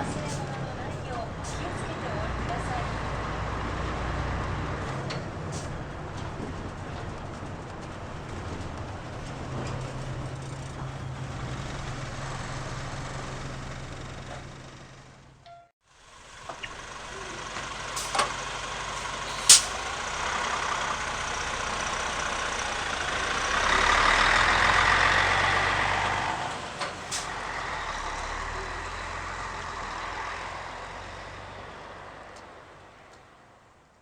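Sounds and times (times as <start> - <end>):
bus diesel engine running: 0.0 - 34.0
sharp clicks or air bursts: 19.3 - 19.8.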